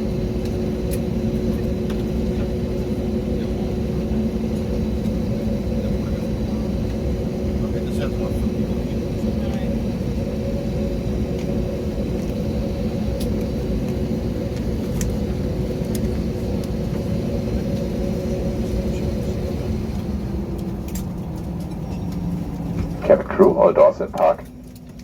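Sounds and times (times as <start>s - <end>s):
airplane cabin rumble: 0.0s - 25.0s
steady tones in hum: 23.0s - 24.6s.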